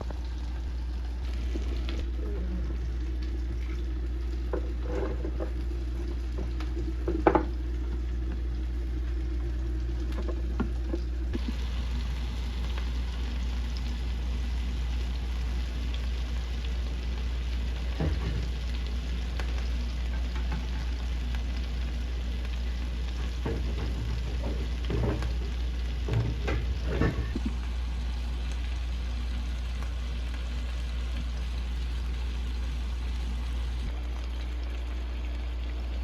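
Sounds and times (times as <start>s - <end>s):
low hum: 0.0s - 36.0s
food sizzling in a pan: 0.2s - 2.4s, 11.4s - 33.9s.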